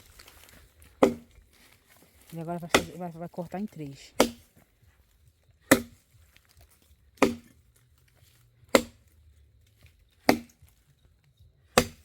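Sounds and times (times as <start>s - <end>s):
axe chopping log: 0.9s - 1.4s, 2.6s - 3.0s, 4.1s - 4.6s, 5.6s - 6.2s, 7.1s - 7.7s, 8.7s - 9.2s, 10.2s - 10.8s, 11.6s - 12.0s.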